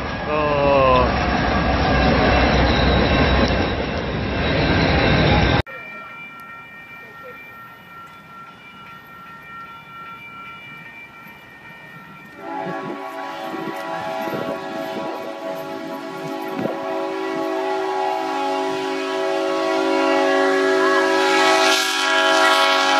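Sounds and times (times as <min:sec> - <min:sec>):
train passing: 0:00.0 - 0:22.9
music: 0:06.1 - 0:12.4.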